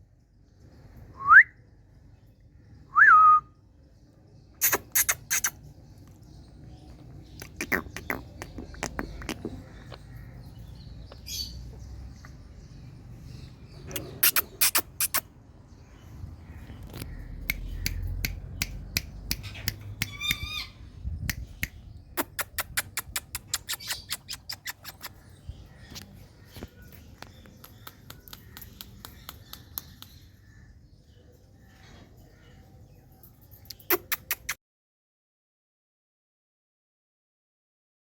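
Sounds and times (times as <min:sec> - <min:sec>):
parakeet clicking: 0:17.0 - 0:20.7, 0:21.3 - 0:25.2, 0:27.2 - 0:30.2.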